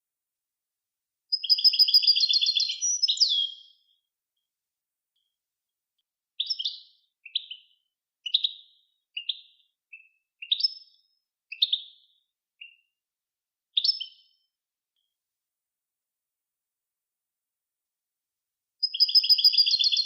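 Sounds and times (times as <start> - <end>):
songbird singing: 1.3 - 4.0, 6.4 - 12.9, 13.8 - 14.3, 18.8 - 20.0.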